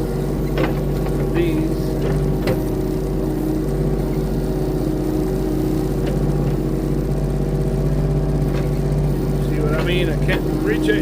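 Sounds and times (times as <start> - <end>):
machine engine running steadily: 0.0 - 11.0.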